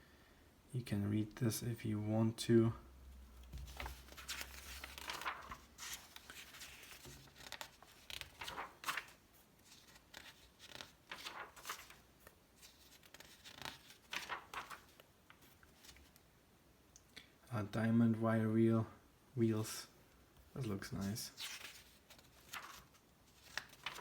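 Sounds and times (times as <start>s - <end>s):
magazine pages rustling: 3.3s - 16.2s, 20.5s - 24.0s.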